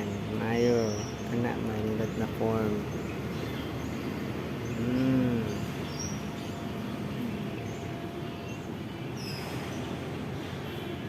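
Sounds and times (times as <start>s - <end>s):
outdoor background noise: 0.0s - 11.0s
person humming: 4.8s - 5.7s.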